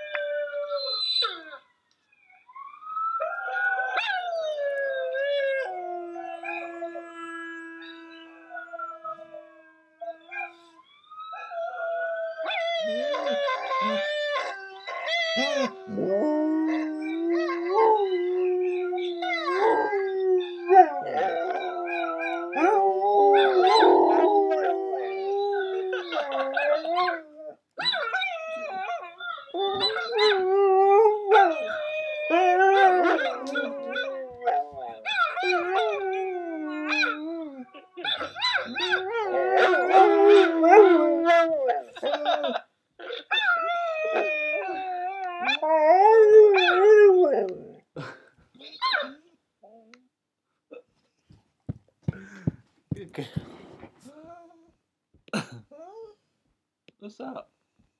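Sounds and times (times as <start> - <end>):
dog howling: 3.2 - 10.6, 11.3 - 47.8.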